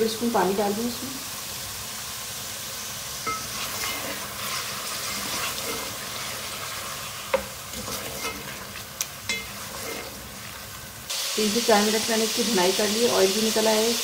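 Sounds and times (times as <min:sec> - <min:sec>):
meat sizzling in a metal pot: 0:00.0 - 0:14.0
wooden spatula stirring: 0:03.3 - 0:10.9.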